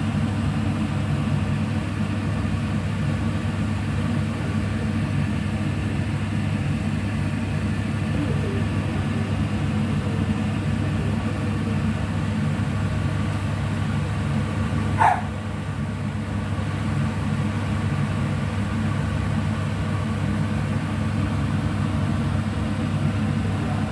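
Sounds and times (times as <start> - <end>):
low mechanical hum: 0.0 - 23.9.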